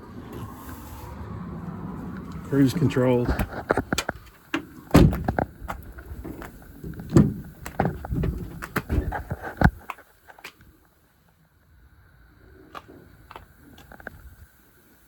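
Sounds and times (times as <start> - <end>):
heavy thuds: 3.2 - 9.8
clunks and clicks in truck cab: 3.2 - 10.6.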